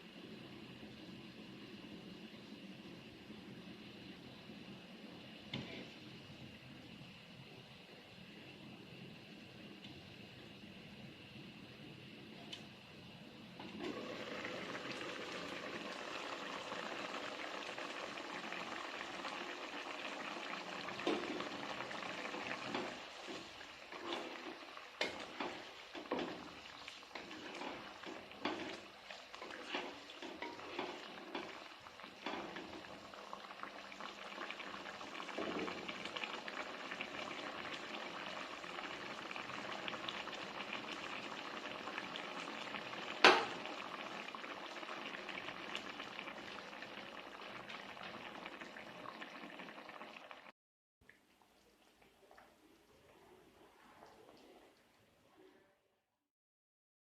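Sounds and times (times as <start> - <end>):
food sizzling in a pan: 0.0 - 7.3, 13.6 - 50.5.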